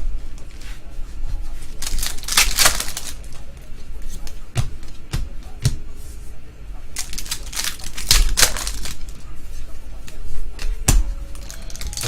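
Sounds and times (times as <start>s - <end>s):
foil wrapper crinkling: 1.7s - 3.4s, 7.0s - 9.2s, 11.4s - 12.0s.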